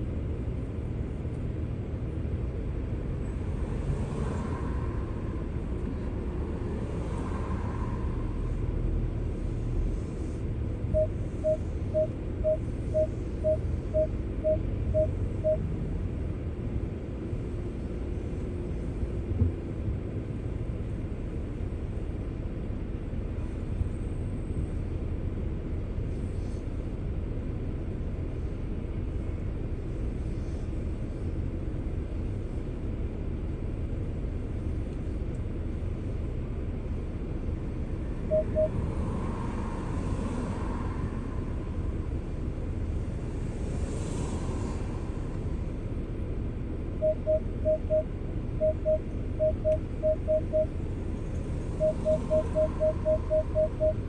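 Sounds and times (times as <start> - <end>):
car road and engine rumble: 0.0 - 54.0
short electronic beeps: 10.9 - 15.6, 38.3 - 38.8, 47.0 - 50.7, 51.8 - 54.0.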